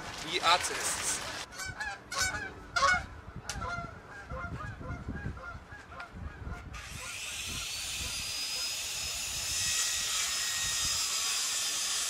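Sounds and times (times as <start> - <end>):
geese honking: 1.5 - 7.1.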